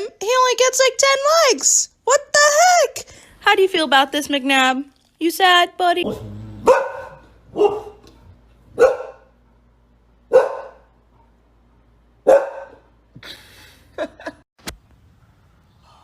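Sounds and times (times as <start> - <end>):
dog barking: 6.1 - 9.4, 10.3 - 11.0, 12.2 - 12.9.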